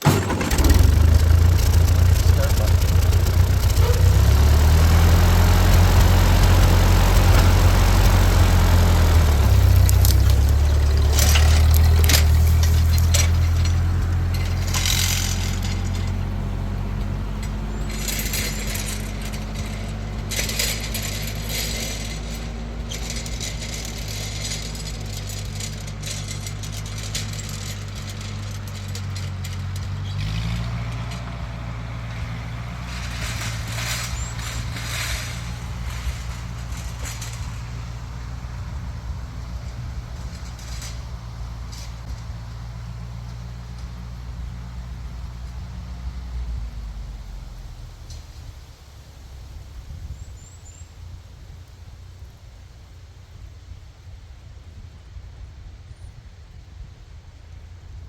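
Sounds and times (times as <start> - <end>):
backhoe engine running: 0.0 - 49.6
metallic clinks and rattles: 9.3 - 16.3, 17.4 - 31.4, 32.9 - 37.9.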